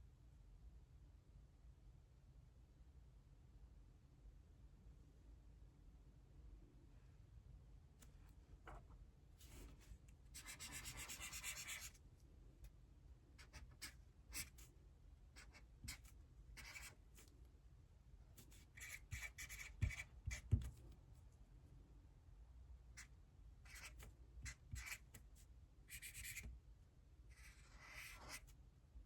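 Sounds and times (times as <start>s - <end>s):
pen scratching on paper: 10.4s - 12.0s, 13.4s - 14.6s, 15.4s - 17.0s, 18.5s - 20.7s, 23.7s - 25.1s, 25.9s - 26.5s, 27.3s - 28.5s
sharp taps on paper: 19.8s - 20.9s.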